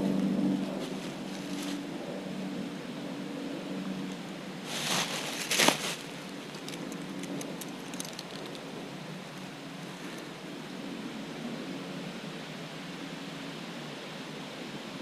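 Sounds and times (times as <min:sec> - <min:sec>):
steady low hum: 0:00.0 - 0:15.0
scraping rustles: 0:00.6 - 0:01.8, 0:04.6 - 0:08.6.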